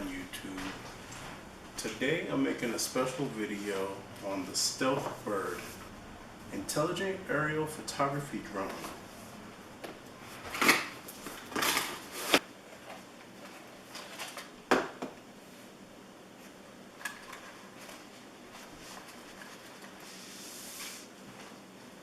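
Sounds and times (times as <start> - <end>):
scraping rustle on table: 17.4 - 21.6.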